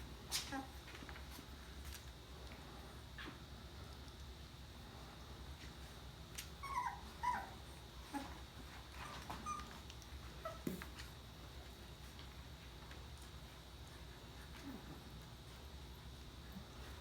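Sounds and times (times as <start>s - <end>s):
puppies whimpering: 6.6s - 9.8s.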